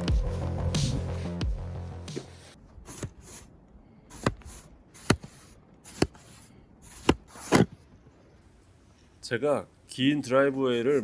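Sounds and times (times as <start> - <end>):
background music: 0.0 - 2.6
snow shovel cutting into snow: 2.2 - 3.5, 4.1 - 7.7.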